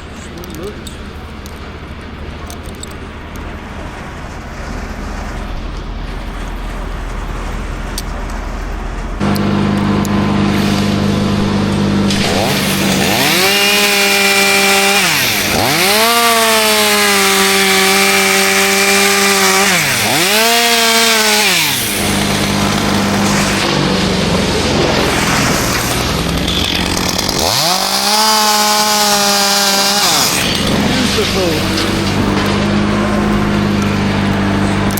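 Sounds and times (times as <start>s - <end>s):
chainsaw revving and idling: 9.2s - 34.9s.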